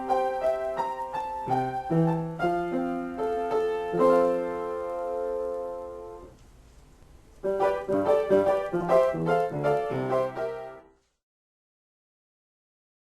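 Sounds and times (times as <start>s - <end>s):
solo piano improvisation: 0.0s - 6.4s, 7.2s - 11.0s.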